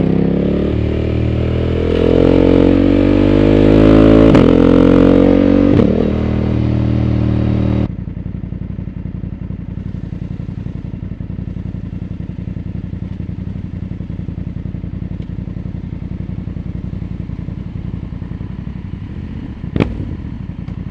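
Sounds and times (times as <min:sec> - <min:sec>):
motorcycle engine slowing to idle: 0:04.6 - 0:20.9.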